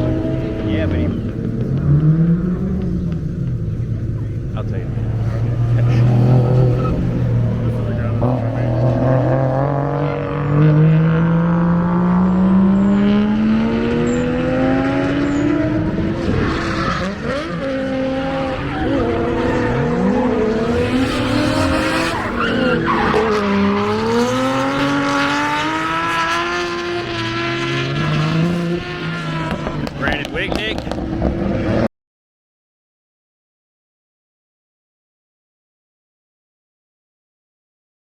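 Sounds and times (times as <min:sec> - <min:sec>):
car engine revving: 0:00.0 - 0:31.9
tyre squeal: 0:05.2 - 0:07.2, 0:18.6 - 0:24.0.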